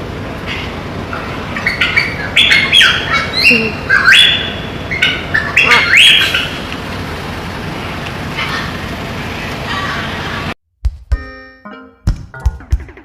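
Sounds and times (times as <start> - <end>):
bird calling high-pitched: 0.6 - 6.7.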